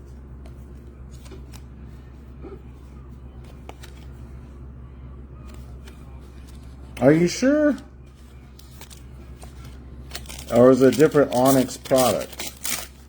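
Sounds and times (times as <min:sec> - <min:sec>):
steady low hum: 0:00.0 - 0:13.0
trading cards rustling: 0:02.8 - 0:04.5, 0:05.4 - 0:13.0.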